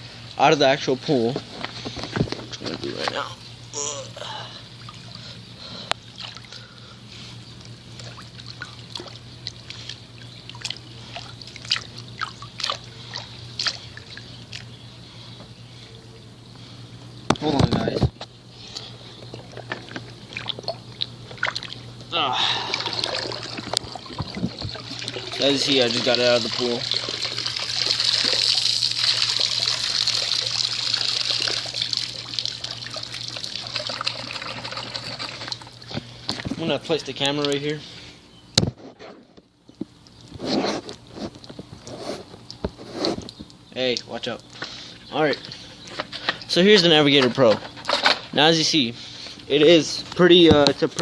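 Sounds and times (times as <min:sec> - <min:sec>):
steady low hum: 0:00.0 - 0:51.0
water sloshing and dripping: 0:04.5 - 0:15.5, 0:17.4 - 0:38.1, 0:39.6 - 0:48.3
water splashes: 0:06.0 - 0:06.7, 0:07.9 - 0:14.7, 0:19.4 - 0:36.7.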